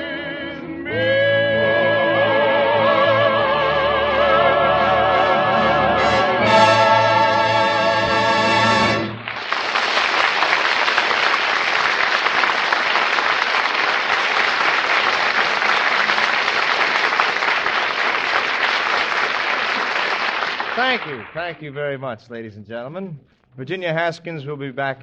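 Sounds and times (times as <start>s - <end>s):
orchestra and singers chord: 0.0s - 9.2s
audience applause: 8.9s - 21.6s.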